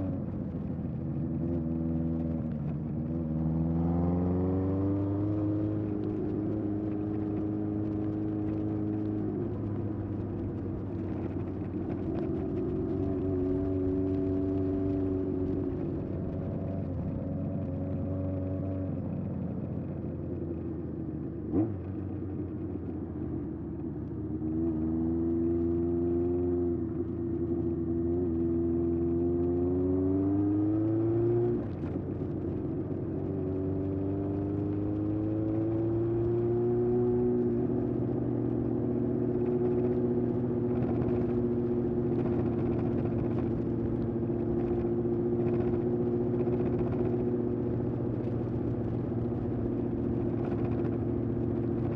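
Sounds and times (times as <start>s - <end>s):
motorcycle engine accelerating: 24.4s - 51.9s.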